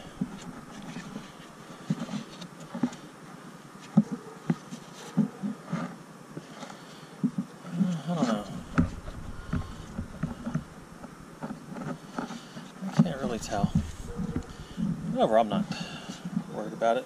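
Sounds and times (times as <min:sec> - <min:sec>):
faint rustling: 0:08.2 - 0:16.5.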